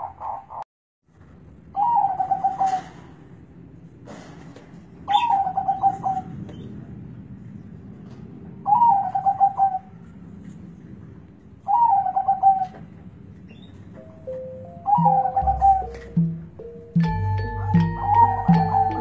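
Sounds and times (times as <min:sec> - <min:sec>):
dove cooing: 0:01.8 - 0:03.1, 0:05.1 - 0:06.4, 0:08.6 - 0:10.0, 0:11.7 - 0:12.9, 0:14.8 - 0:19.0.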